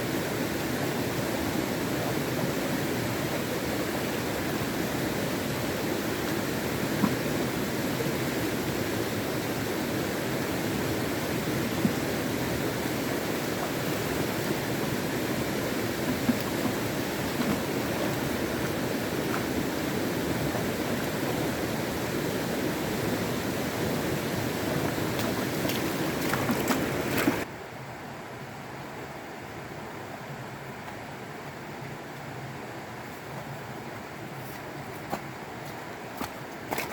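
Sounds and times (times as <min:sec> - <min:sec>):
flowing water rushing: 0:00.0 - 0:27.5.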